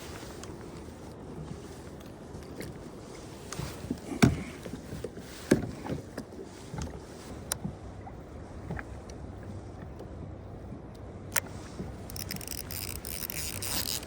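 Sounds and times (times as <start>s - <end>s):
knocks and thumps on kayak hull: 3.6s - 6.2s.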